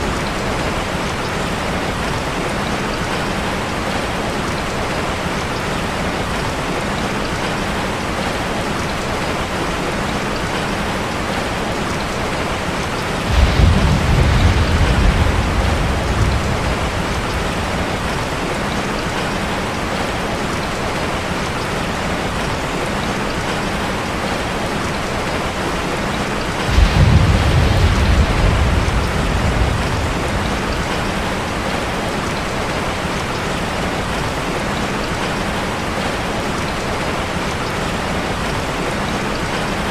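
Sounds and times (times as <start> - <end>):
rain drumming on a metal roof: 0.0 - 39.9
thunder rumbling: 12.7 - 20.1, 26.4 - 32.8.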